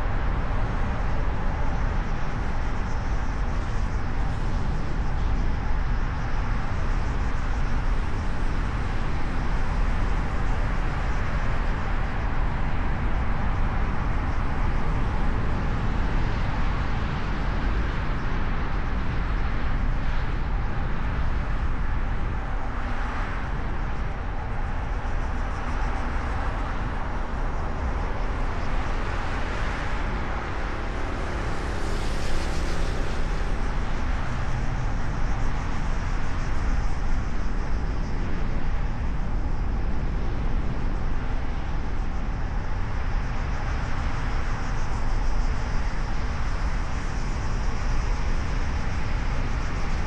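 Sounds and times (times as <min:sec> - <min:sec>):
car road and wind noise: 0:00.0 - 0:50.0.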